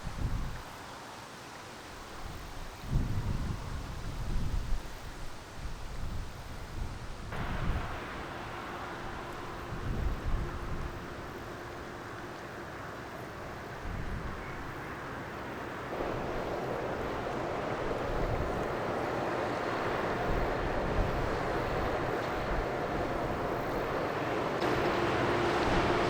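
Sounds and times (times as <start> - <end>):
wind buffeting microphone: 0.0 - 0.7, 2.2 - 26.0
ship engine hum: 7.0 - 26.0.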